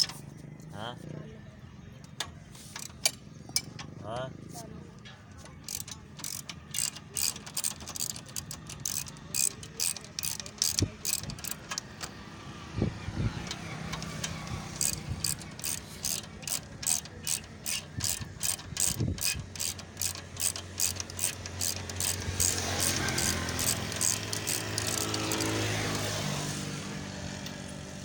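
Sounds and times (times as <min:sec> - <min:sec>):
ratchet wrench clicking: 0:02.2 - 0:04.0, 0:05.4 - 0:12.3, 0:13.3 - 0:26.6.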